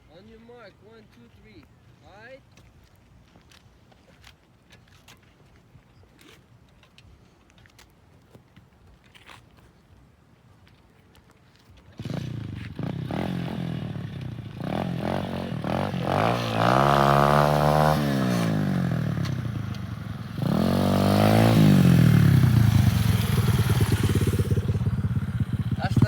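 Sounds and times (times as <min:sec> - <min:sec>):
dirt bike engine revving: 0:12.0 - 0:26.0.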